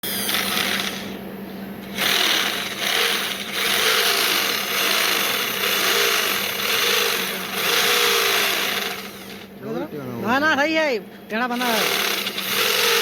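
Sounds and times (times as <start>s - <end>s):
lathe motor hum: 1.9s - 9.6s, 11.5s - 13.0s.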